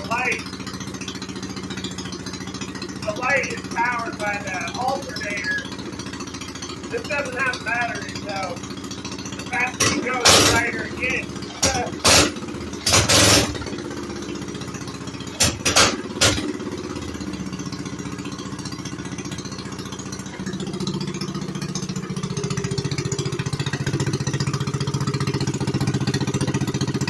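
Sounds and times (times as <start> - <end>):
minibike engine revving: 0.0 - 27.0.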